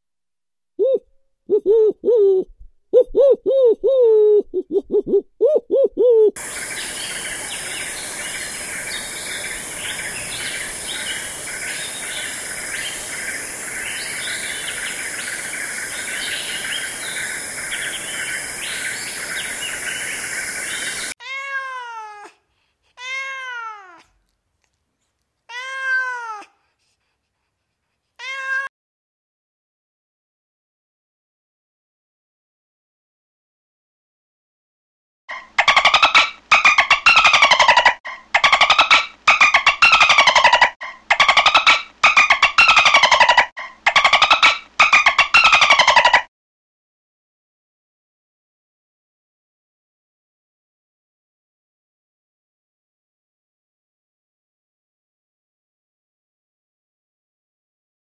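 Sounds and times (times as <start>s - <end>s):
drawn-out rising and falling calls: 5.1s - 21.2s, 35.3s - 46.3s
chorus of high chirping: 6.4s - 21.2s.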